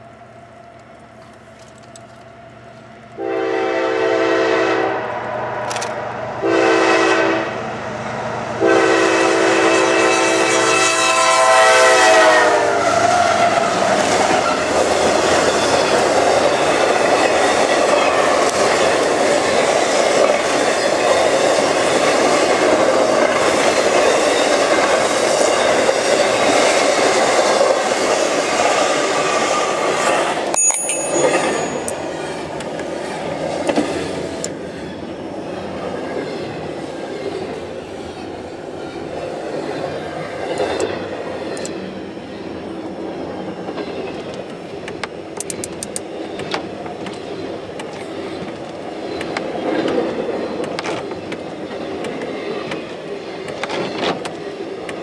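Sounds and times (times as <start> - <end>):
freight train cars rumbling by: 0.0 - 55.0
locomotive air horn blasts: 3.2 - 5.5, 6.4 - 7.6, 8.6 - 12.9.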